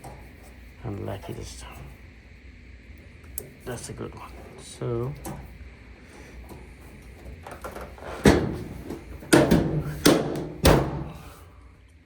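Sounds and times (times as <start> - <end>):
knocks on clothes dryer: 8.2 - 11.3.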